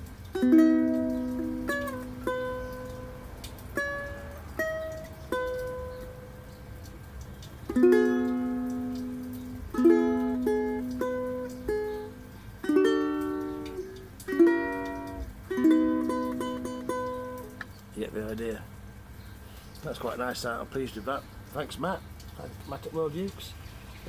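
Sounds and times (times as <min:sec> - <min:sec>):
ukulele notes and chords: 0:00.0 - 0:06.5, 0:07.7 - 0:17.8.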